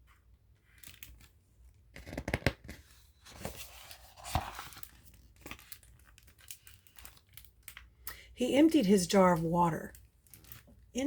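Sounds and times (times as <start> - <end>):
paper pages rustling: 0.6 - 7.9.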